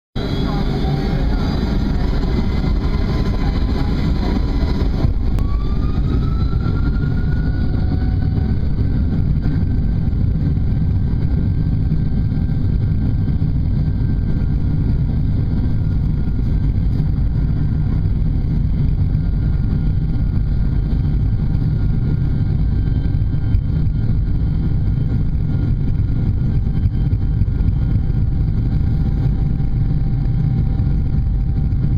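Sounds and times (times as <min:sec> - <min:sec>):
jet engines spooling up: 0:00.2 - 0:31.9.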